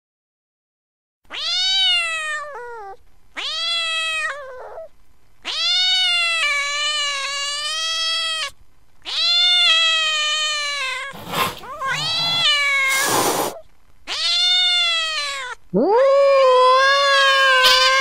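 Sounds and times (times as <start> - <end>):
cat yowling: 9.1 - 18.0.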